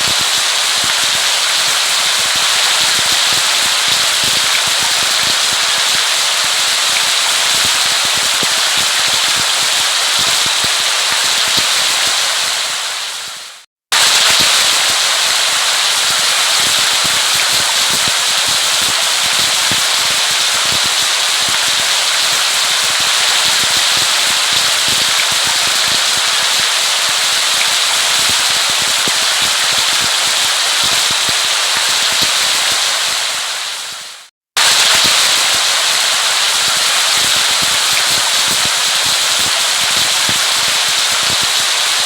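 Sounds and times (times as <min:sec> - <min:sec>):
dense rain pattering: 0:00.0 - 0:42.0.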